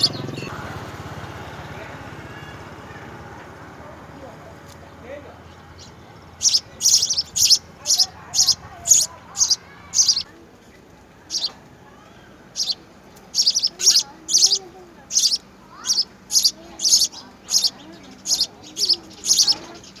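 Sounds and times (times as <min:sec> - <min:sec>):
small bird chirping: 0:00.0 - 0:00.5, 0:05.6 - 0:10.4, 0:11.2 - 0:20.0.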